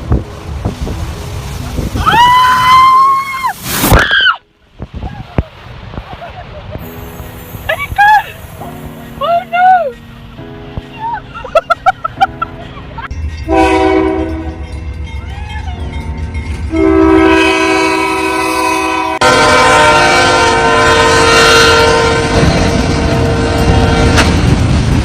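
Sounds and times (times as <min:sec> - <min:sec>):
low rumble of train: 0:00.0 - 0:25.0
locomotive air horn blowing: 0:13.5 - 0:14.7, 0:16.7 - 0:24.5.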